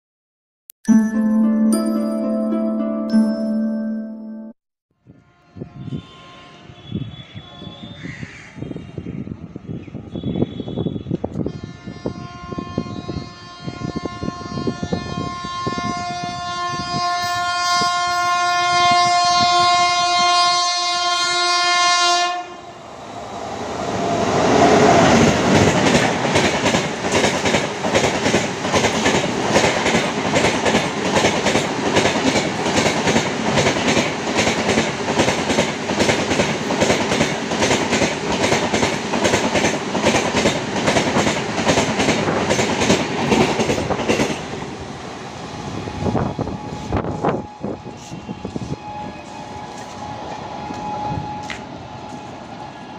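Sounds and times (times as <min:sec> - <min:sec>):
locomotive horn: 0:05.1 - 0:08.0, 0:10.2 - 0:22.6, 0:47.6 - 0:50.0
train rolling past: 0:13.7 - 0:52.9.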